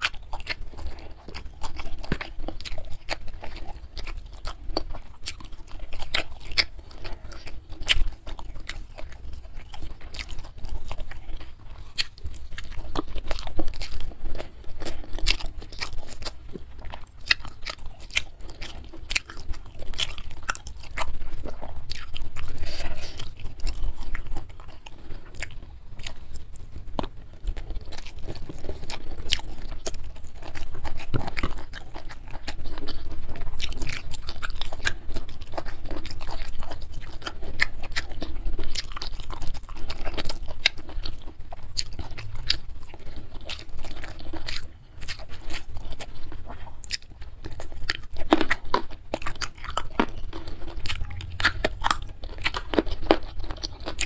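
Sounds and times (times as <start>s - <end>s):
chewing and crunching food: 0.0s - 54.0s
wet mouth sounds: 0.0s - 54.0s.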